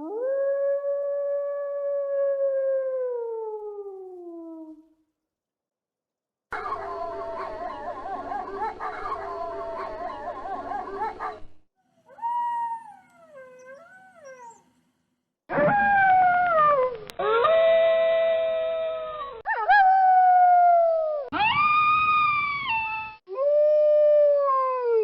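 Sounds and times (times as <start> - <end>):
wolves howling: 6.6 - 11.4.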